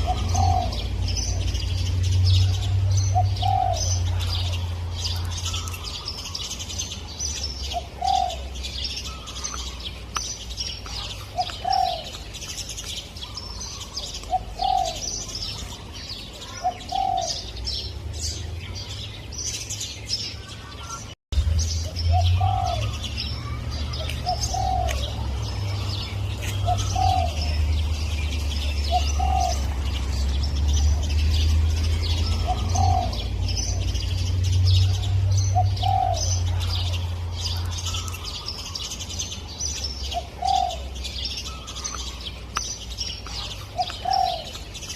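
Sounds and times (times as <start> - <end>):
dove cooing: 0.0 - 1.7, 2.4 - 6.5, 7.6 - 9.8, 10.8 - 12.3, 13.2 - 15.8, 16.4 - 17.6, 22.1 - 27.8, 28.6 - 30.2, 31.3 - 34.0, 34.8 - 38.8, 40.1 - 42.1, 43.2 - 44.7
small birds chirping: 0.0 - 44.9.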